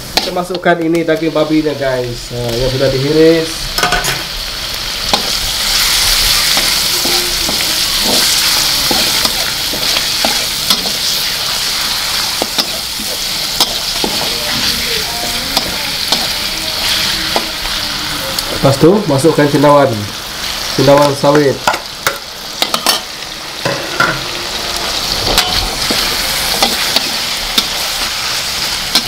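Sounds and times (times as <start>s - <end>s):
meat sizzling in hot oil: 0.0s - 29.0s
metal spatula scraping wok: 5.0s - 18.6s, 21.7s - 29.0s.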